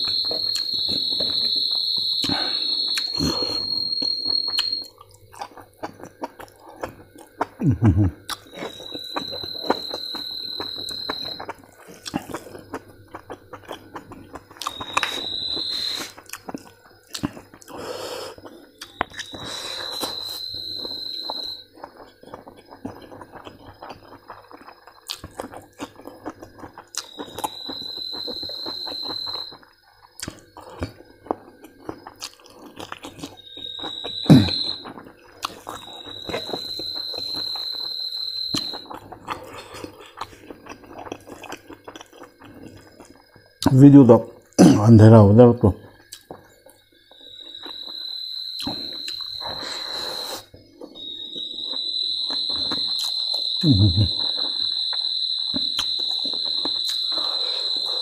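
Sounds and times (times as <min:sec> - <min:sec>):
high whistle-like tone: 0:00.0 - 0:04.9, 0:08.4 - 0:11.5, 0:14.6 - 0:16.2, 0:18.9 - 0:21.6, 0:27.0 - 0:29.6, 0:33.4 - 0:39.0, 0:47.1 - 0:58.0
chewing and lip smacks: 0:04.5 - 0:07.6, 0:08.2 - 0:37.8, 0:38.5 - 0:43.7, 0:46.0 - 0:46.8, 0:54.2 - 0:58.0.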